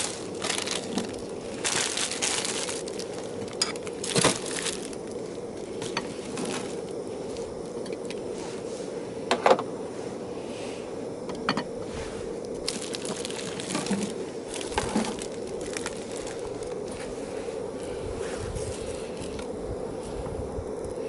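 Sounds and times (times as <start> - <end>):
fire popping: 0.0 - 8.4, 12.3 - 17.2
wood fire crackling: 0.0 - 8.7, 12.2 - 18.0.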